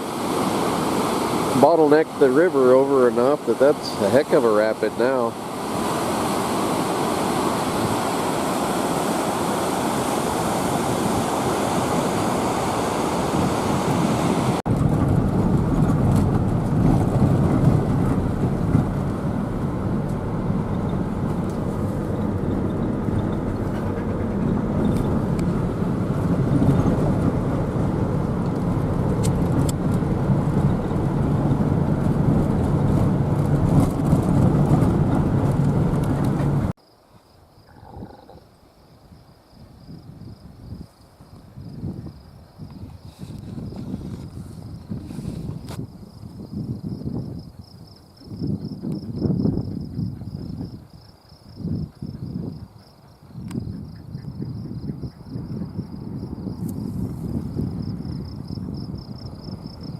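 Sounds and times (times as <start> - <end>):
vehicle road noise: 0.0 - 36.8.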